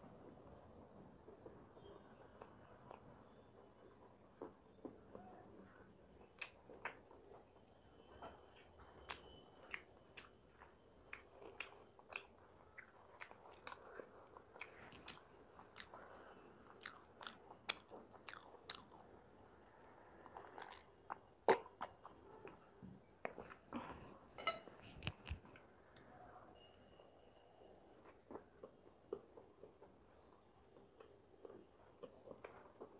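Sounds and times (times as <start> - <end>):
chewing crunchy snack: 9.1 - 19.2, 19.9 - 22.6, 28.0 - 32.9.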